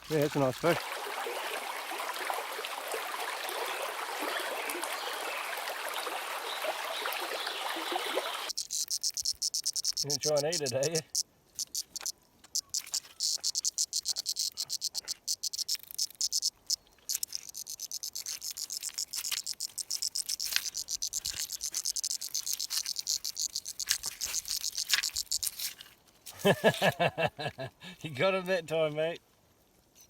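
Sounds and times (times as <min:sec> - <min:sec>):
fishing reel clicking rapidly: 0:08.5 - 0:25.5.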